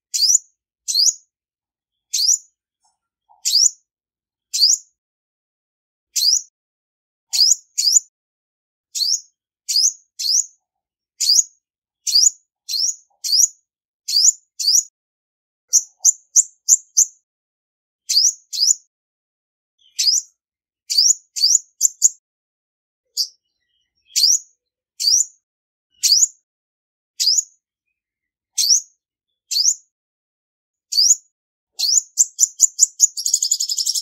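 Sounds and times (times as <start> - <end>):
bird chip calls: 0.1 - 1.2, 2.1 - 2.4, 3.3 - 3.8, 7.3 - 8.0, 9.0 - 10.5, 19.8 - 20.3, 28.6 - 28.8, 31.8 - 34.0.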